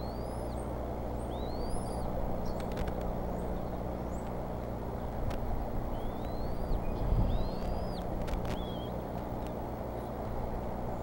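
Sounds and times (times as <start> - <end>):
steady low rumble: 0.0 - 11.0
high thin bird whistles: 6.0 - 8.0.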